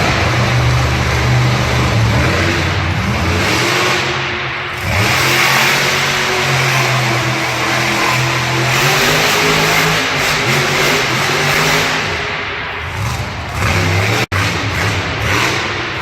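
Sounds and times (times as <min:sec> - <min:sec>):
loud vehicle engine running: 0:00.0 - 0:16.0.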